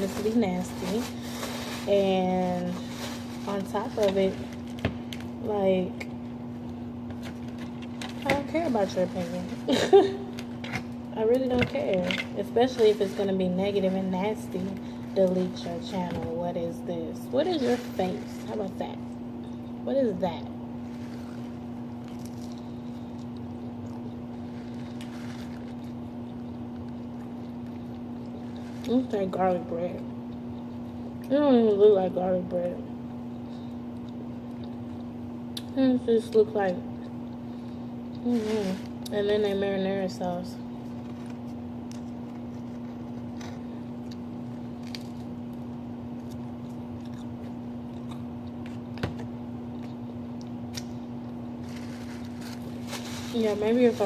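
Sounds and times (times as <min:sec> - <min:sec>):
low electrical hum: 0:00.0 - 0:54.0
chewing with wet mouth clicks: 0:33.9 - 0:35.7.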